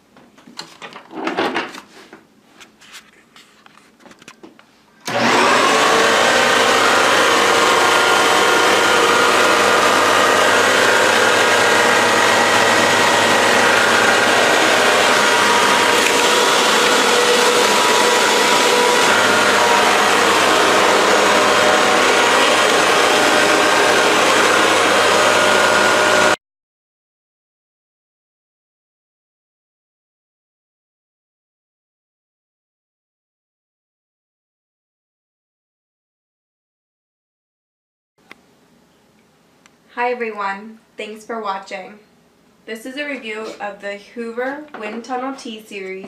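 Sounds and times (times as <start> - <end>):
vacuum cleaner running: 5.0 - 26.4.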